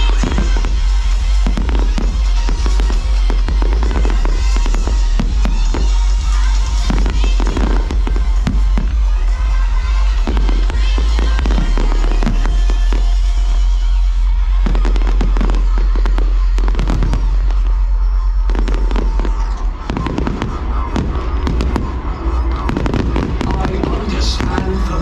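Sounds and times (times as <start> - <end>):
loud music with heavy bass: 0.0 - 25.0.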